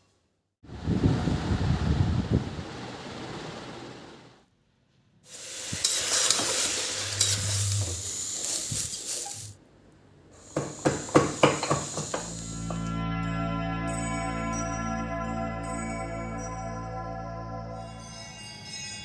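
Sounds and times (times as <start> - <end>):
food sizzling in a pan: 5.3 - 9.6, 10.4 - 12.9.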